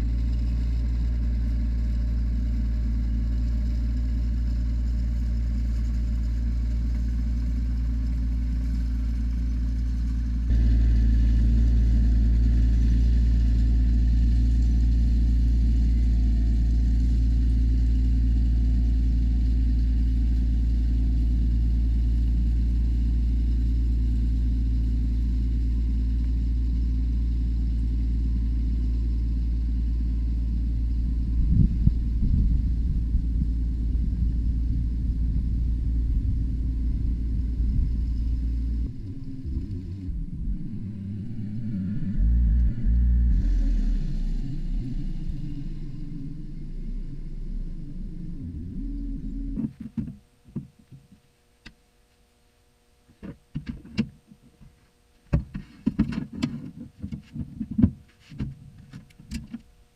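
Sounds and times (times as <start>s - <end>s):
tractor engine droning: 0.0s - 51.1s
low bumps: 30.6s - 51.2s.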